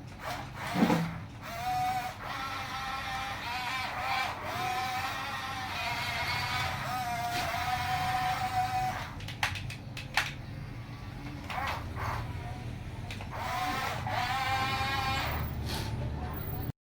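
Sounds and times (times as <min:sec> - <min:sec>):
small electric motor whining: 0:00.2 - 0:09.2, 0:10.8 - 0:15.6
sharp plastic clicks: 0:09.0 - 0:10.5.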